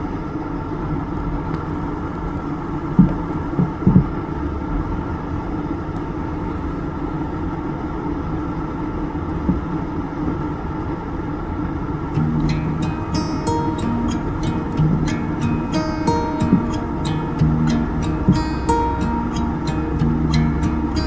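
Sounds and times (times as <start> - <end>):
car road and engine rumble: 12.2 - 21.0
guitar music: 12.2 - 21.0.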